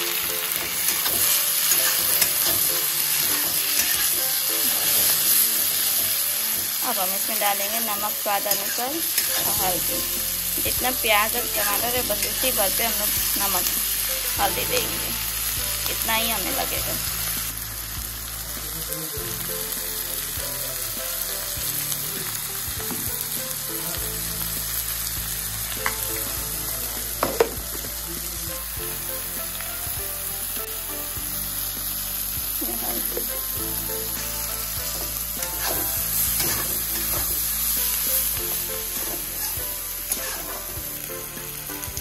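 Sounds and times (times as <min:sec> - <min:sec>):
vegetables sizzling in hot oil: 0:00.0 - 0:42.0
metal spatula scraping: 0:00.2 - 0:05.4, 0:34.9 - 0:37.5, 0:38.8 - 0:40.8.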